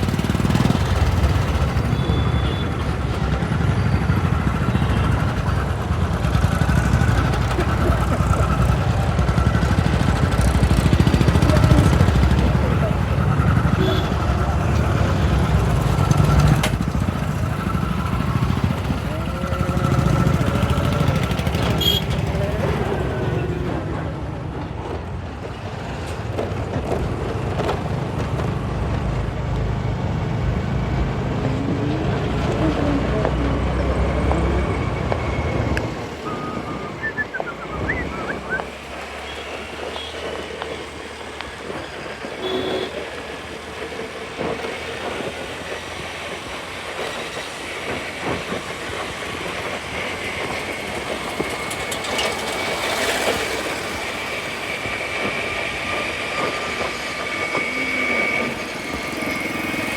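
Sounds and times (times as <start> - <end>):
wind and road noise: 0.0 - 59.9
brief squeals: 34.6 - 38.7.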